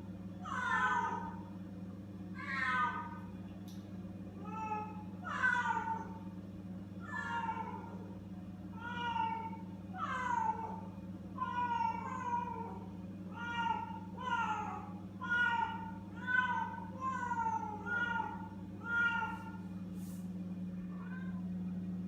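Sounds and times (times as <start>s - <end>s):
steady low hum: 0.0s - 22.0s
kittens meowing: 0.4s - 1.4s, 2.4s - 3.3s, 4.4s - 6.2s, 7.0s - 8.1s, 8.8s - 19.6s.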